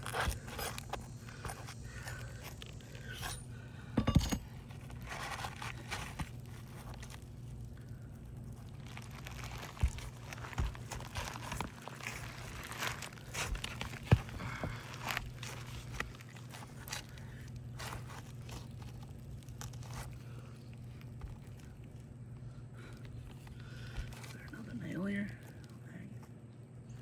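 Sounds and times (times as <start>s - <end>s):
shingles crinkling and scraping: 0.0s - 26.4s.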